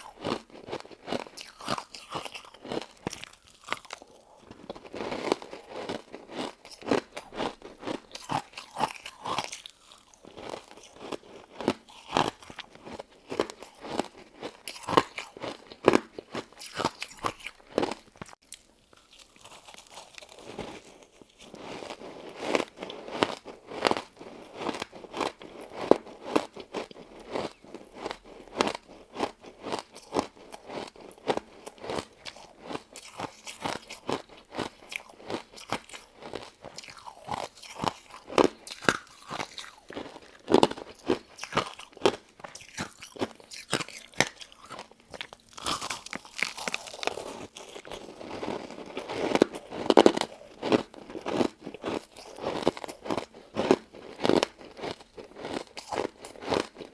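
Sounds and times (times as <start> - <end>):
person crunching ice: 0.0 - 56.9.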